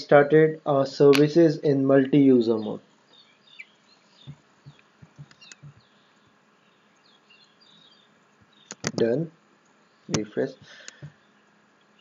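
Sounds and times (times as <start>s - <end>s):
small bird-like chirps: 2.5s - 12.0s
soft low taps: 4.2s - 5.9s
sharp clicks: 4.7s - 5.8s, 8.6s - 11.6s.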